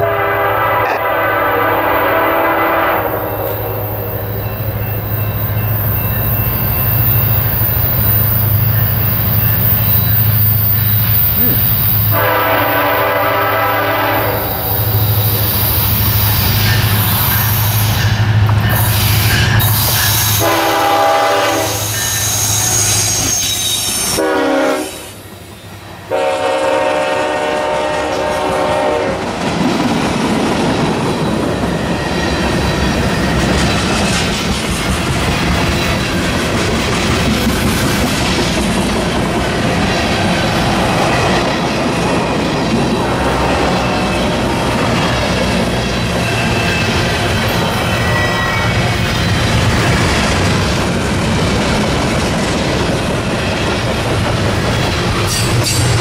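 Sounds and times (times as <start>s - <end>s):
train air horn blasts: 0.0s - 4.2s, 11.4s - 14.7s, 18.9s - 25.2s, 26.1s - 29.2s
train wheels clattering and squealing: 3.0s - 12.9s, 13.6s - 25.9s, 29.2s - 56.0s.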